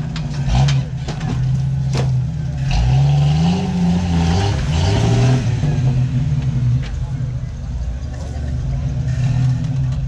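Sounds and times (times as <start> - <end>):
engine revving: 2.0 - 6.9.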